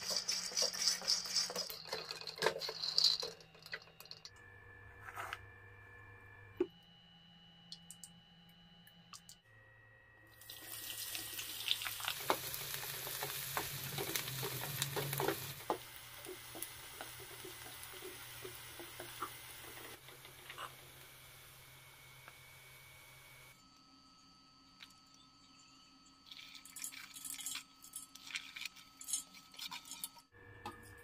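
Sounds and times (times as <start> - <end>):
onions sizzling in hot oil: 10.4 - 20.0
spatula scraping a pan: 16.4 - 20.8.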